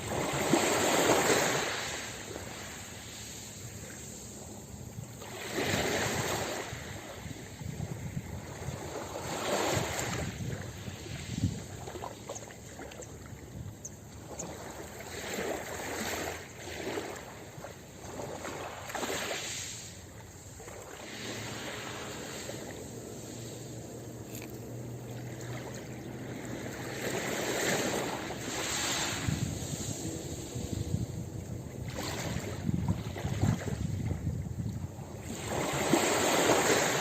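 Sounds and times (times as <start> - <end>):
waves washing onto a beach: 0.0 - 13.6, 14.3 - 37.0.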